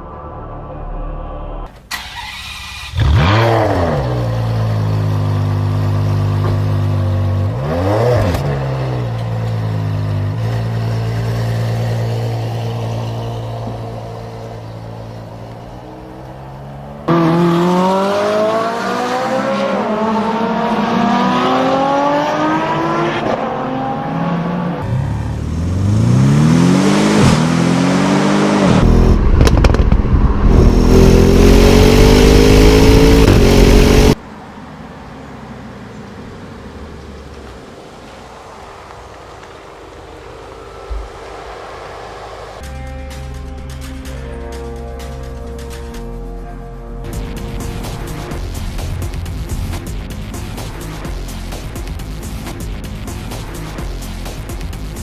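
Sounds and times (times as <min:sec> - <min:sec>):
car engine revving and idling: 0:00.0 - 0:34.2
road noise: 0:00.0 - 0:55.0.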